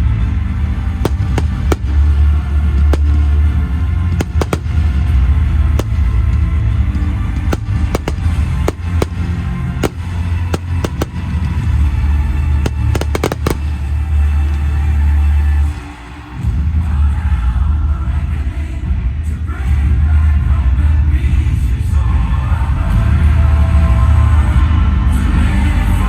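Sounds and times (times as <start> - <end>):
fireworks bangs and cracks: 1.0 - 16.8.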